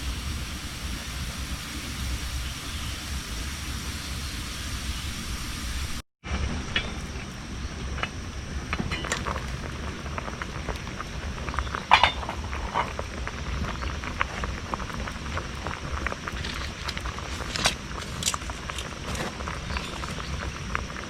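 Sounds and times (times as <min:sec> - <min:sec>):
steady low hum: 0:00.0 - 0:21.0
campfire crackling and popping: 0:07.0 - 0:21.0.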